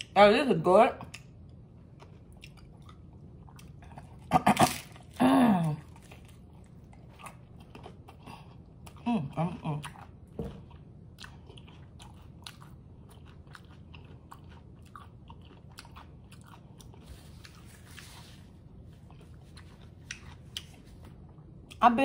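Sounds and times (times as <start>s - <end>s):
crunchy chewing: 1.1s - 9.1s, 9.8s - 21.8s
paper napkin rustle: 17.0s - 18.6s.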